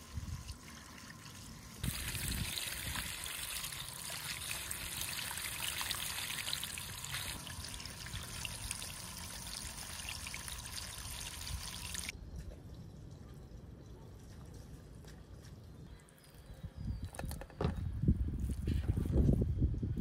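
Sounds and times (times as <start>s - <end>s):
water running and trickling: 0.0s - 12.1s
faint outdoor background: 0.0s - 20.0s.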